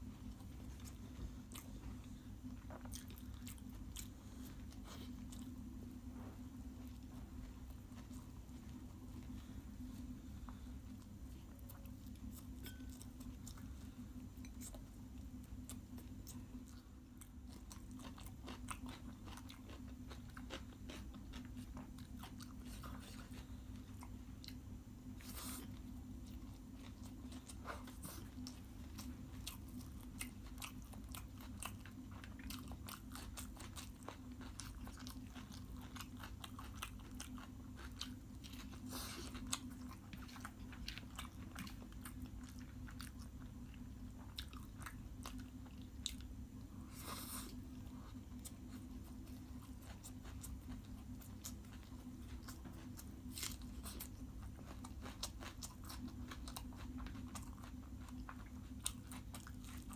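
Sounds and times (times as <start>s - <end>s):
person chewing food: 0.0s - 59.9s
steady low hum: 0.0s - 59.9s.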